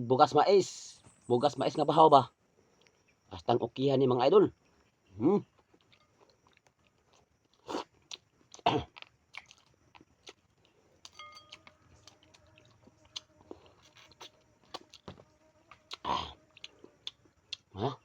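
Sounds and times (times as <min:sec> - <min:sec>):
food crunching: 0:05.6 - 0:17.7
person chewing food: 0:05.6 - 0:17.7.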